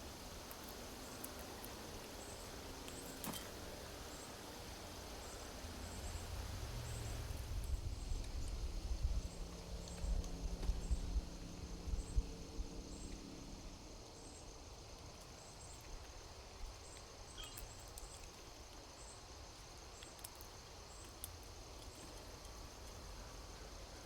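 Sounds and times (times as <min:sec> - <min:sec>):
high insect drone: 0:00.0 - 0:17.8.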